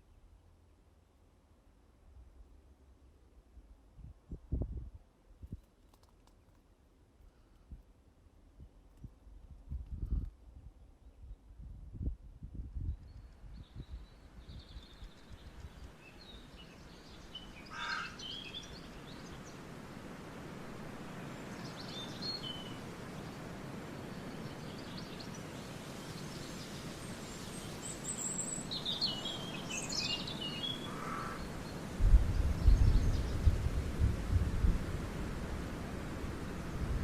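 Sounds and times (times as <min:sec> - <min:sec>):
small birds chirping: 0:12.8 - 0:20.2, 0:21.0 - 0:33.6
steady rushing hiss: 0:14.2 - 0:37.0.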